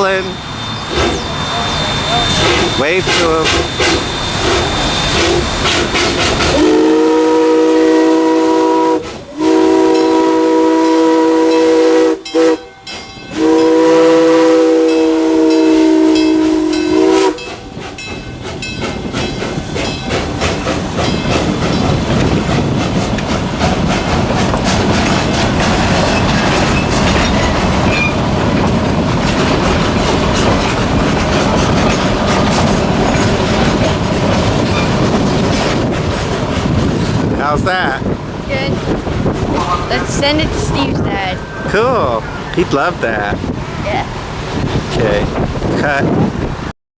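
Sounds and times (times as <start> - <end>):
steam locomotive chime whistle: 0.0 - 18.9
train running on track: 0.0 - 46.7.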